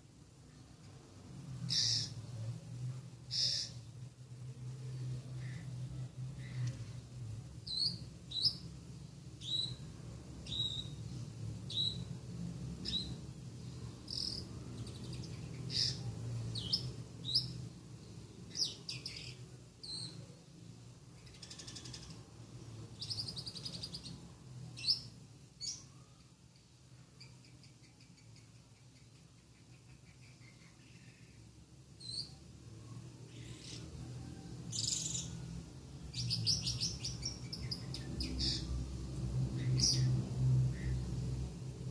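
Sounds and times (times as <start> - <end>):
low steady hum: 0.0 - 41.9
bird chirping: 1.6 - 2.3, 3.3 - 4.0, 7.6 - 8.8, 9.4 - 12.2, 12.8 - 20.3, 21.1 - 41.5.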